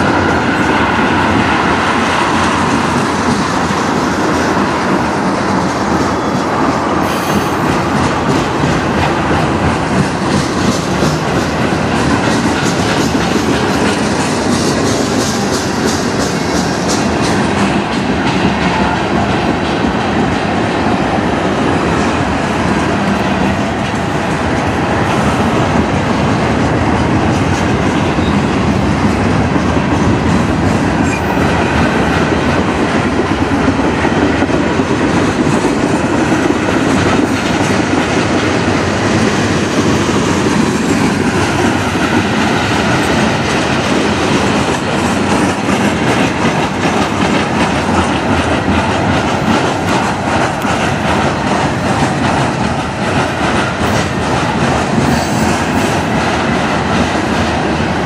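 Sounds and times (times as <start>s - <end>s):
train wheels rumbling on rail: 0.0s - 58.0s
wheels clicking over rail joints: 2.3s - 20.6s.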